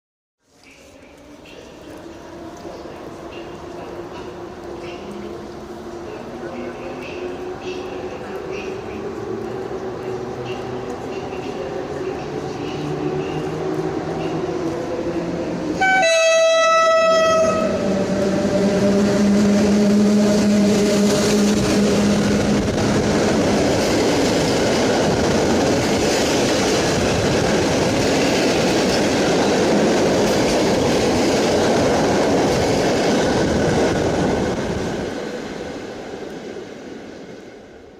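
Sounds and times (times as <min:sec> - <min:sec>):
locomotive horn blast: 0:15.8 - 0:17.8.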